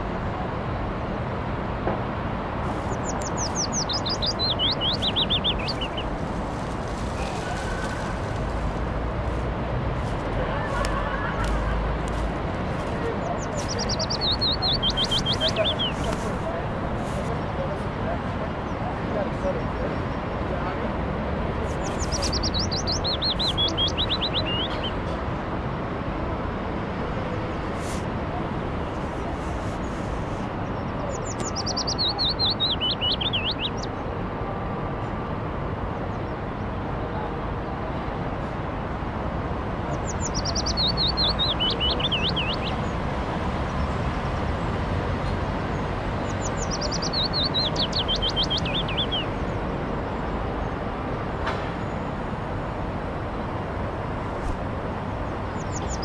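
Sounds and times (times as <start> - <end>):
background ambience noise: 0.0 - 56.0
songbird trill: 2.8 - 6.2, 13.1 - 16.4, 21.7 - 25.0, 28.9 - 34.0, 39.9 - 43.0, 45.7 - 50.4, 55.5 - 56.0.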